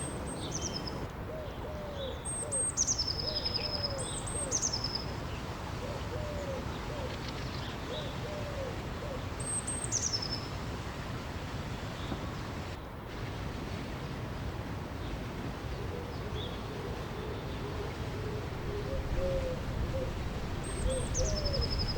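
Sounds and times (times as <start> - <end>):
birds calling: 0.0 - 13.5, 18.3 - 21.9
river water flowing: 9.2 - 15.9.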